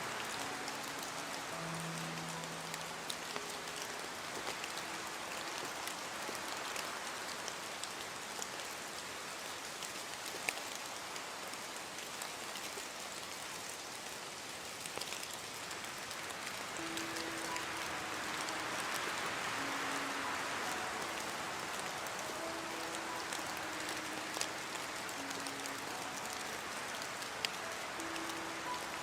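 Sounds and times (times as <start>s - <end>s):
raindrops ticking on a surface: 0.0s - 29.0s
steady rain hiss: 0.0s - 29.0s.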